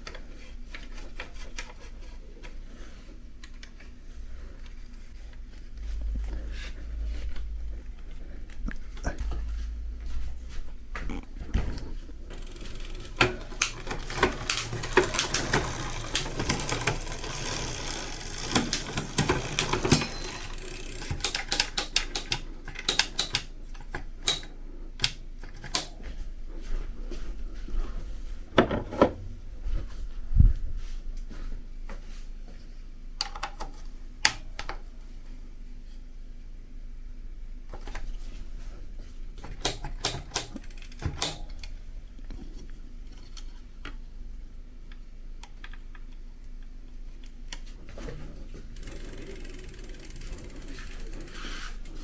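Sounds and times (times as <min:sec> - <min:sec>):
metallic clicking of hand tools: 0:18.4 - 0:25.9, 0:39.6 - 0:41.7.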